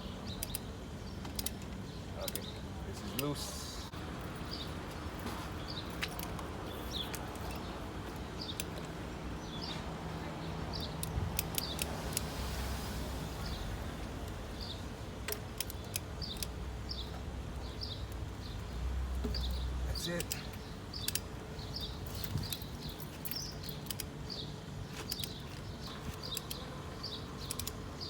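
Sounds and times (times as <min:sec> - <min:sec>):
bird chirping: 0:00.0 - 0:28.0
hand tools clicking: 0:00.4 - 0:03.4, 0:05.9 - 0:09.0, 0:10.8 - 0:12.3, 0:15.2 - 0:17.1, 0:17.8 - 0:24.2, 0:24.9 - 0:26.7, 0:27.4 - 0:27.8.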